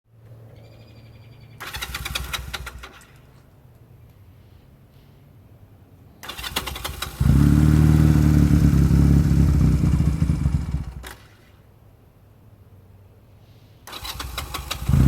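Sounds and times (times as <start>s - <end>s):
motorcycle engine cranking and running: 1.6s - 3.3s, 6.2s - 11.4s, 13.9s - 15.0s.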